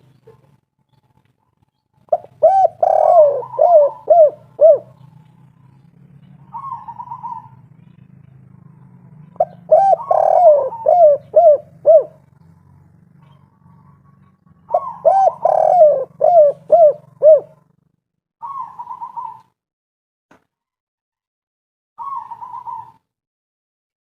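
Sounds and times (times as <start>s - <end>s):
dove cooing: 2.1s - 17.8s, 18.4s - 19.6s, 22.0s - 23.0s.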